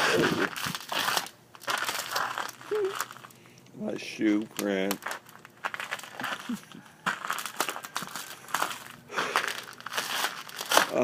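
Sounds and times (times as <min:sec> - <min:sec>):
footsteps crunching in icy snow: 0:04.8 - 0:11.0.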